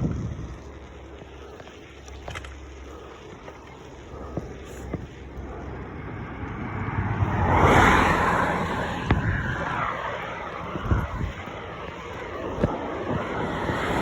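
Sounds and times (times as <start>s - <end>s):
car passing by: 5.3s - 14.0s.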